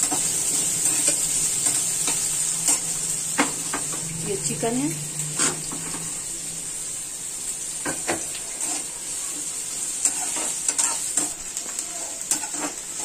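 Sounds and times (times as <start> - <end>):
onions sizzling in oil: 0.0 - 13.0
spatula scraping metal pan: 8.5 - 8.9, 10.0 - 13.0.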